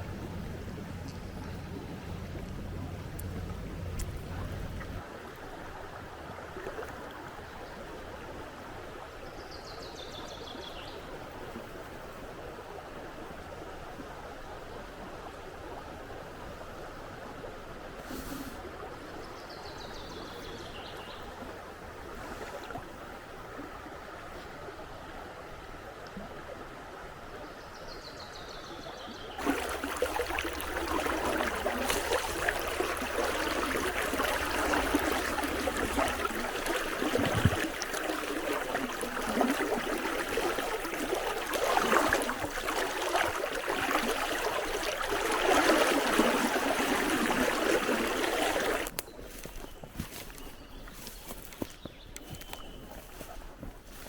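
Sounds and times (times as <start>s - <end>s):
babbling water: 29.4s - 48.9s
river water rushing: 29.4s - 48.9s.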